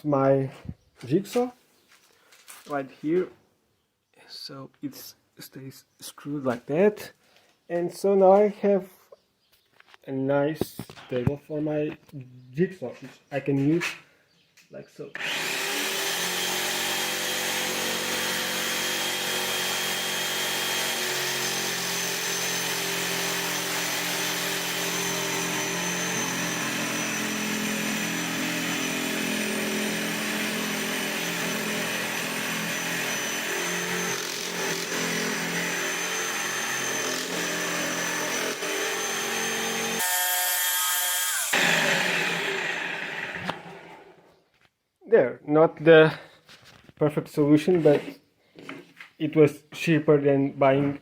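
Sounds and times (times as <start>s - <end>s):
jigsaw cutting wood: 15.2s - 44.3s.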